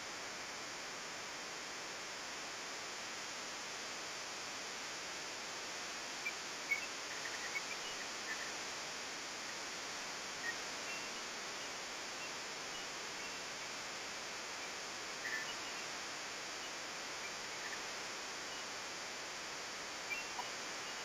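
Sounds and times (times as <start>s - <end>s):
outdoor background hiss: 0.0s - 21.0s
faint high chirps: 14.6s - 16.0s, 20.0s - 21.0s.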